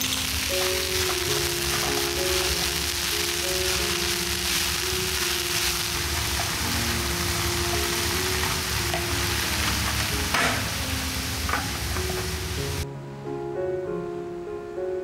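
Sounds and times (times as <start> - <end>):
chives sizzling in a frying pan: 0.0 - 12.8
soft background music: 0.0 - 15.0
spatula knocking pan: 7.6 - 10.8.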